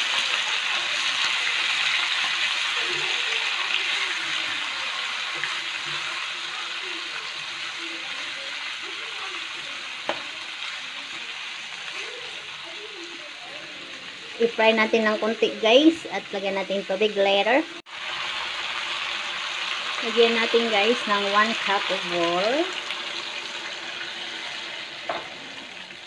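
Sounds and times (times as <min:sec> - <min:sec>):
spatula stirring in wok: 0:00.0 - 0:12.8
food sizzling in hot oil: 0:00.0 - 0:26.0.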